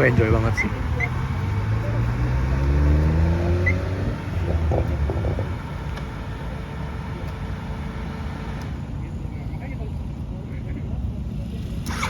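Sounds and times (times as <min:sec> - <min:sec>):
wind noise on microphone: 0:03.9 - 0:05.7.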